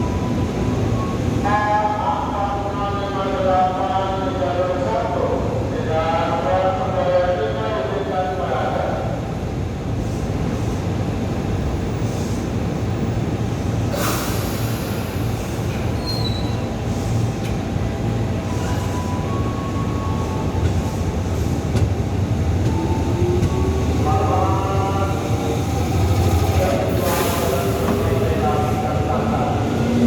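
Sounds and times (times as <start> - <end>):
train rumbling on rails: 0.0 - 30.0
high-pitched wheel squeal: 16.0 - 16.6.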